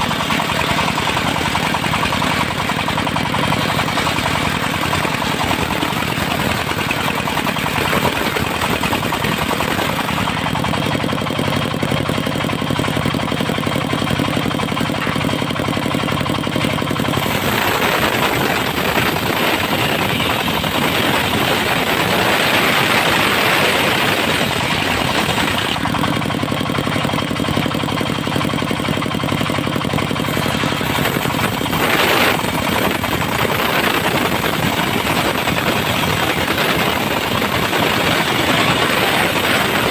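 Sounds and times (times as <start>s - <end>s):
sawmill engine running: 0.0s - 39.9s
saw blade cutting wood: 30.2s - 39.9s.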